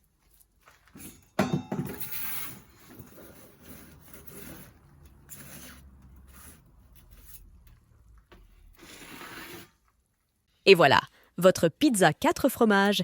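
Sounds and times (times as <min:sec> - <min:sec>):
pizza peel scraping stone floor: 0:02.1 - 0:07.8, 0:08.6 - 0:10.0.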